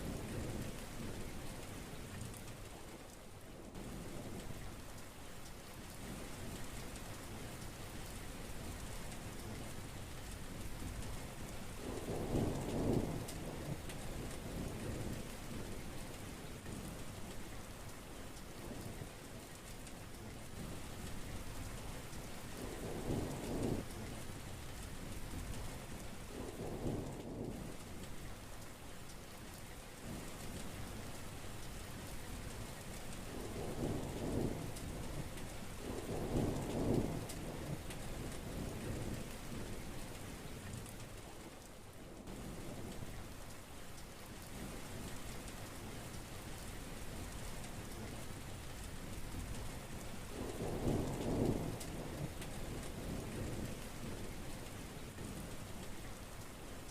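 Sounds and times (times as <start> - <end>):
heavy rain falling: 0.0 - 56.9
thunder rumbling: 33.3 - 40.0, 50.3 - 56.0.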